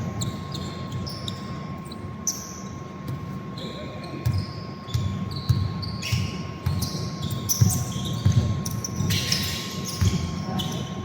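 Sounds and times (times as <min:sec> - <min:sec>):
sneakers squeaking on floor: 0:00.0 - 0:11.0
basketball bouncing: 0:03.0 - 0:03.4, 0:04.2 - 0:10.5.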